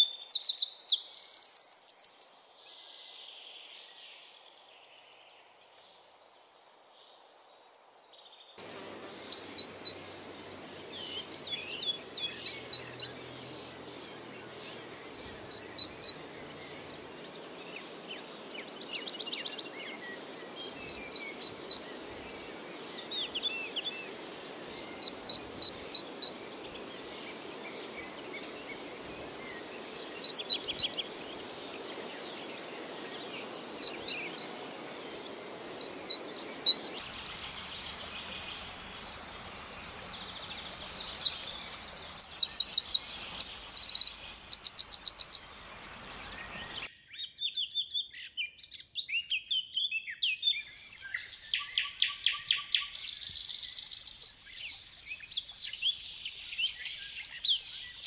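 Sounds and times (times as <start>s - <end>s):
bird chirps: 0.0s - 2.5s, 8.6s - 58.0s
fast trilling wren song: 0.0s - 2.5s, 8.7s - 46.9s.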